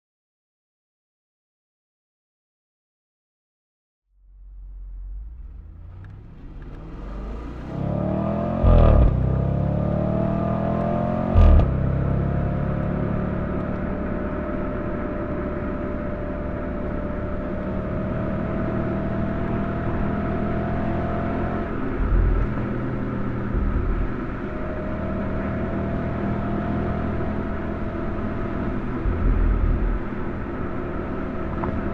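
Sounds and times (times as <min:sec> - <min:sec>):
car engine accelerating: 0:04.2 - 0:31.9
low thump on gear shifts: 0:11.4 - 0:11.8, 0:21.7 - 0:24.7.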